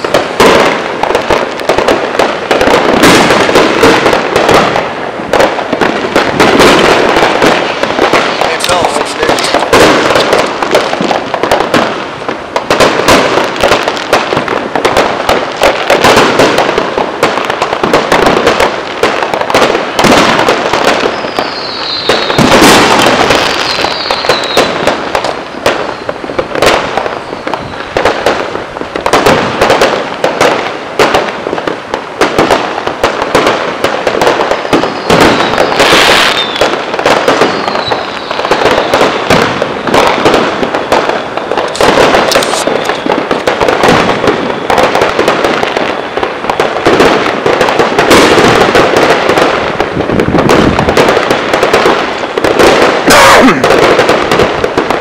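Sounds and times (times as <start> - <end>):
loud sharp cracks: 0.0 - 21.2, 22.1 - 45.7, 46.5 - 55.0
fireworks bangs and crackles: 0.0 - 55.0
falling whistles: 21.2 - 22.4, 23.6 - 24.8, 37.5 - 38.4.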